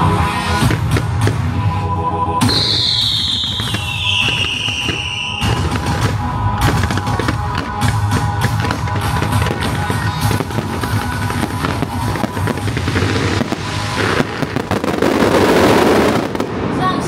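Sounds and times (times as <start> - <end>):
loud music with drum beat: 0.0 - 1.7, 2.4 - 15.0
firecrackers popping: 0.0 - 1.8, 2.4 - 17.0.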